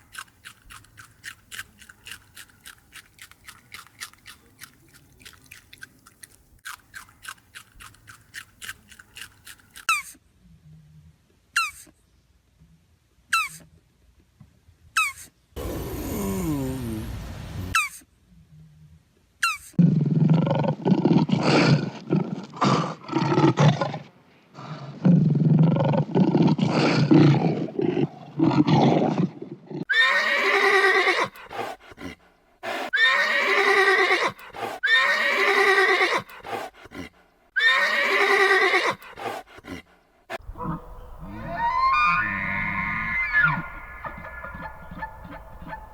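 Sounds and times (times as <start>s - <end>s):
long rough low animal calls: 40.4s - 45.9s
short higher falling animal calls: 40.5s - 45.9s.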